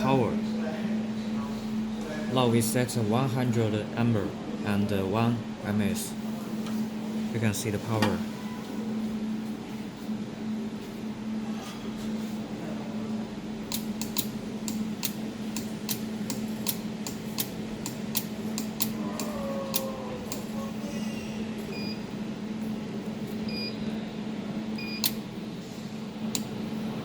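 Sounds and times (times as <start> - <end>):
machine low hum: 0.0 - 27.0
laser welder pulse clicks: 13.7 - 20.5, 25.0 - 25.2.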